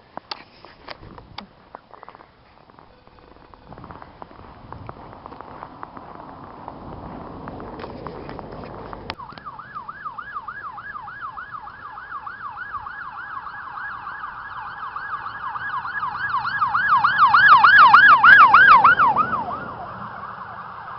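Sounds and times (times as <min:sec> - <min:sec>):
police siren yelping: 0:07.7 - 0:20.9.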